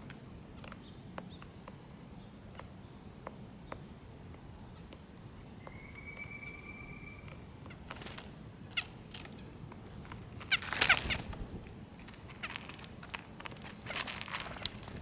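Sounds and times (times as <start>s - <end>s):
songbirds chirping: 0.0s - 15.0s
thin whistle: 5.6s - 7.3s.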